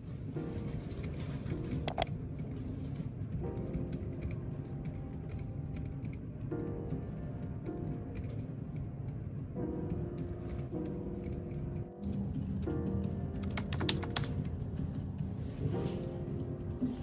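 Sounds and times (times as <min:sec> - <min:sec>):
background music with held chords: 0:00.0 - 0:17.0
computer keyboard key clicks: 0:01.9 - 0:02.1, 0:13.4 - 0:14.4.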